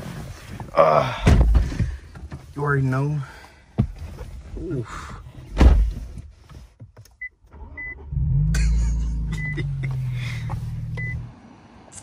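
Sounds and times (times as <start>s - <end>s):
thump: 1.2s - 2.0s, 5.6s - 6.0s
car engine starting and idling: 7.0s - 12.0s
short electronic beeps: 11.0s - 11.2s.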